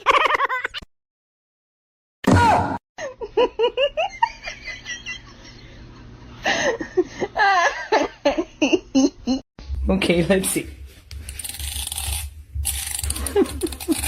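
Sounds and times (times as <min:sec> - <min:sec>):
person laughing: 0:06.4 - 0:09.4, 0:13.1 - 0:14.0.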